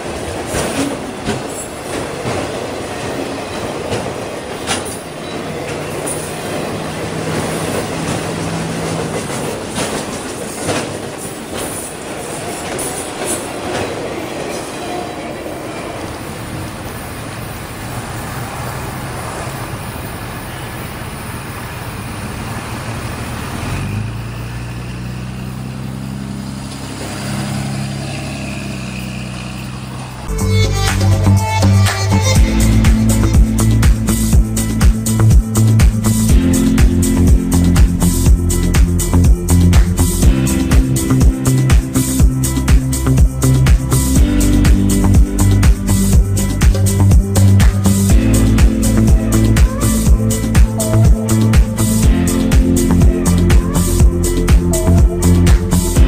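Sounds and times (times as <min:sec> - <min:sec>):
freight train cars clacking: 0:00.0 - 0:56.0
steady low drone: 0:29.4 - 0:56.0.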